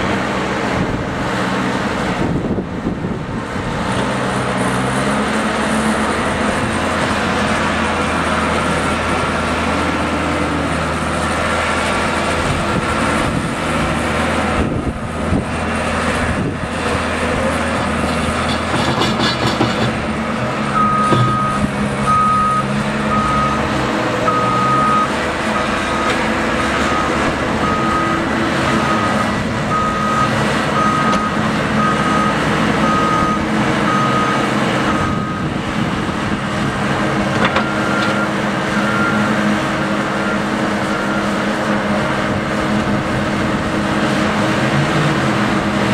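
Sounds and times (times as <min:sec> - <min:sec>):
heavy vehicle engine running: 0:00.0 - 0:45.9
reversing alarm beeping: 0:20.7 - 0:26.2, 0:26.8 - 0:35.5, 0:37.6 - 0:39.4.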